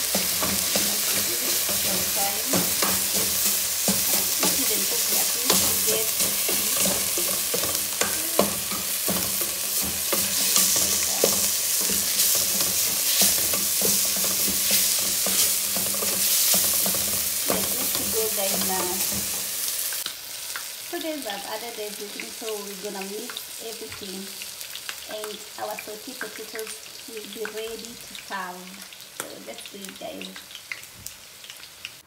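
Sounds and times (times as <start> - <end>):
spatula scraping metal pot: 0.0 - 19.6
onions sizzling in oil: 0.0 - 32.0.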